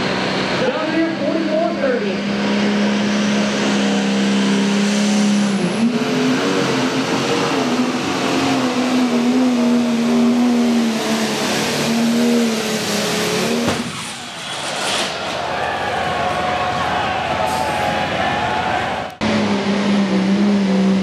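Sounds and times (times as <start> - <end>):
diesel engine revving hard: 0.0 - 21.0.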